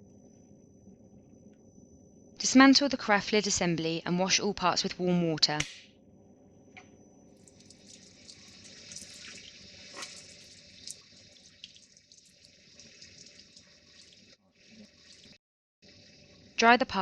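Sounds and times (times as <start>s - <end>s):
tap water running: 7.4s - 15.4s.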